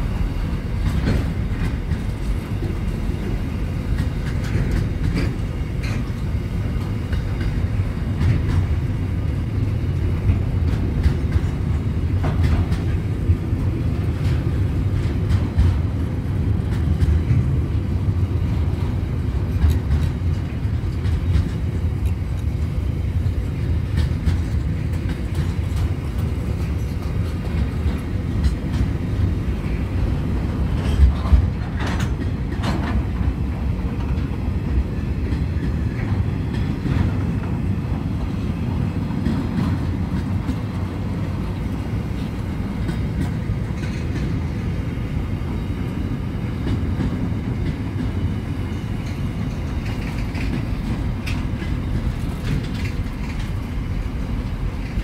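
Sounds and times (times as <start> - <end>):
train wagons rolling on rails: 0.0 - 55.0
steel wheels clattering: 46.6 - 55.0.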